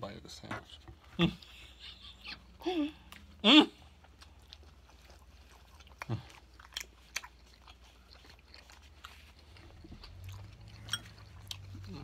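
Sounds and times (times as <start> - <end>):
chewing with crunches: 2.9 - 12.0.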